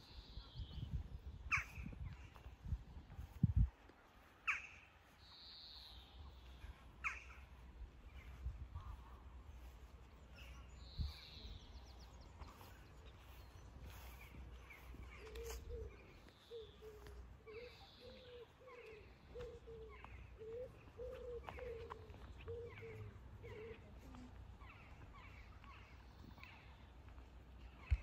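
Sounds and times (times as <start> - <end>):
longer higher bird calls: 9.6 - 26.8.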